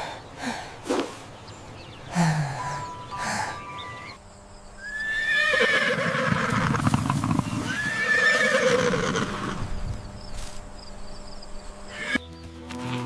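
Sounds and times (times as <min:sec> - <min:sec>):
horse neighing: 0:04.8 - 0:09.6, 0:11.9 - 0:12.2
hooves clopping: 0:06.0 - 0:09.2, 0:12.0 - 0:13.0.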